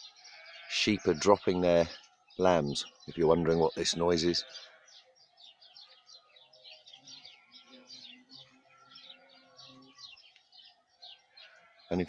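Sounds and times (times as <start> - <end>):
birds chirping: 0.0 - 12.0
bee buzzing past: 4.8 - 12.0.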